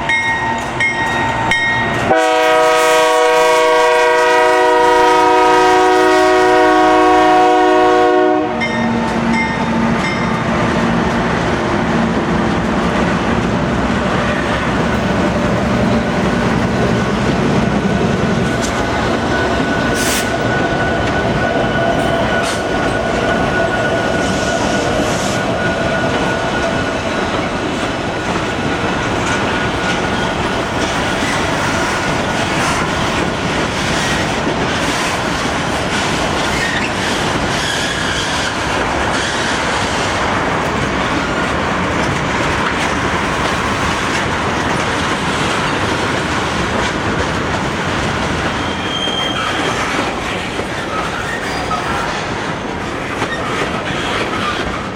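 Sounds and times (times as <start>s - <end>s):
train wheels clattering on rails: 0.0s - 54.9s
wheel squeal: 36.4s - 39.7s, 48.4s - 52.2s.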